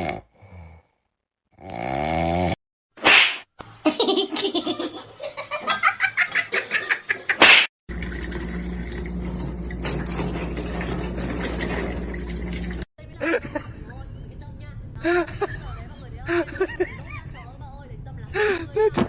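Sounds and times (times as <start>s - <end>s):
person laughing: 3.8s - 7.4s, 13.2s - 13.9s, 15.0s - 17.4s.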